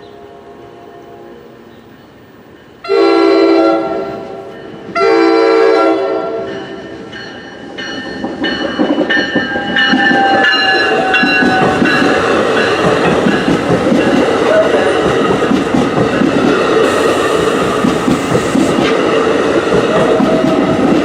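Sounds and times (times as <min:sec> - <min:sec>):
train horn blasts: 0:00.0 - 0:01.6, 0:02.8 - 0:06.6
train approaching with rail noise: 0:00.0 - 0:21.0.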